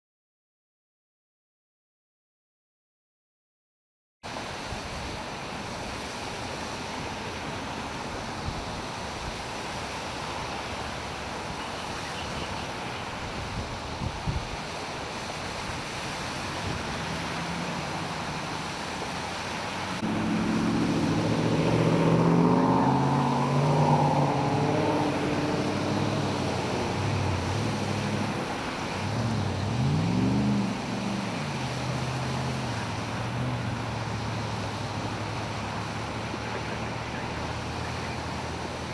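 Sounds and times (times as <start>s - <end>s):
tyres in floodwater: 4.2s - 38.9s
vehicle engine: 16.6s - 38.9s.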